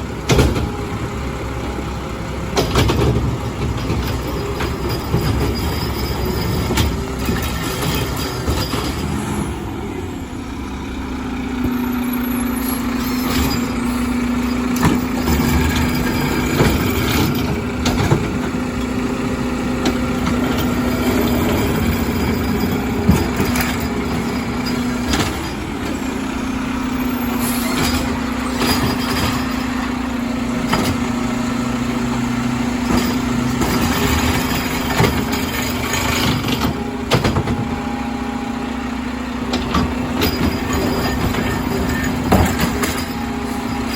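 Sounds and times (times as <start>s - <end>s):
garbage truck engine whining: 0.0s - 43.9s
clanks and knocks: 2.6s - 9.1s, 14.6s - 18.9s, 19.8s - 25.6s, 30.6s - 31.2s, 32.8s - 37.8s, 39.5s - 43.3s.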